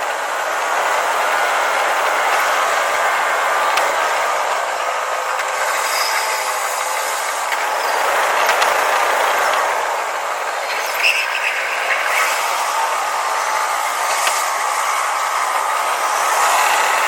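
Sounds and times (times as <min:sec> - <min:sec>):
electric train running: 0:00.0 - 0:17.0
high-pitched chirps: 0:10.5 - 0:12.8.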